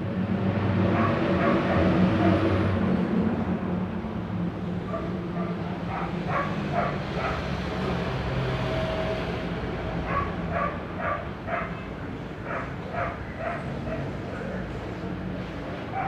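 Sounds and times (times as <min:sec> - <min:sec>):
dog barking: 0:00.9 - 0:02.5, 0:04.8 - 0:07.5, 0:10.0 - 0:14.7.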